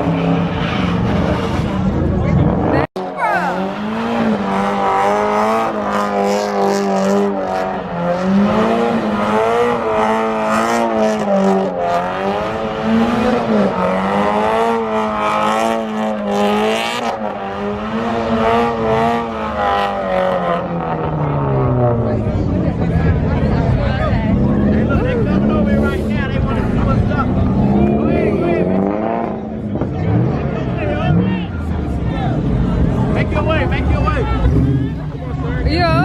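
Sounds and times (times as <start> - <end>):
tires squealing: 0.0 - 22.2
car engine at high revs: 0.0 - 36.0.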